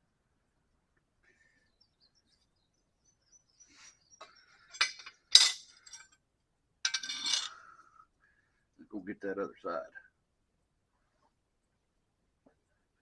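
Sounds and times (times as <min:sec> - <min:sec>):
metal tools clinking: 0:04.7 - 0:06.2, 0:06.9 - 0:07.6.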